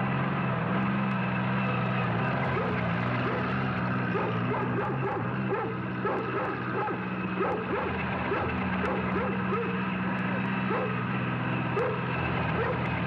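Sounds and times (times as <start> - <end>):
tractor engine running: 0.0 - 13.0
dog barking and yipping: 2.5 - 11.0, 11.8 - 12.9.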